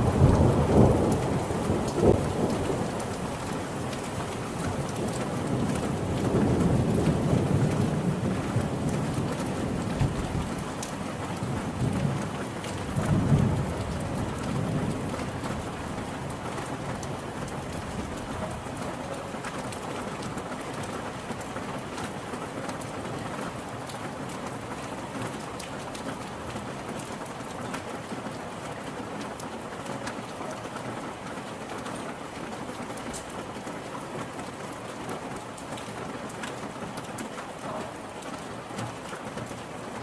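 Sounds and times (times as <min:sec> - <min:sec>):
low rumble of thunder: 0:00.0 - 0:18.7
steady rain falling: 0:00.0 - 0:40.0.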